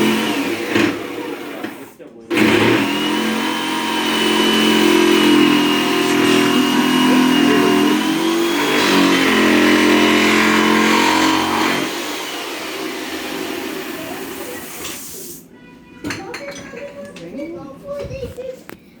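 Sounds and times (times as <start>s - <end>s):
electric jigsaw cutting: 0.0s - 14.9s.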